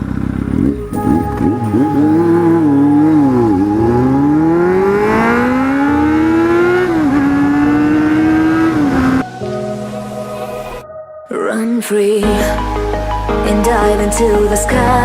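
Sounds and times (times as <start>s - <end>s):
motorcycle engine accelerating: 0.0s - 9.3s.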